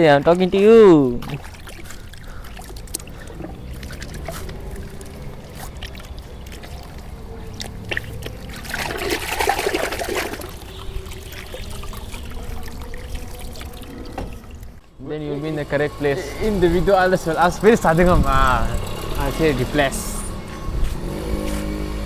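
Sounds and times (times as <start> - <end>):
water splashing: 0.0 - 14.8
water trickling and dripping: 0.0 - 22.0.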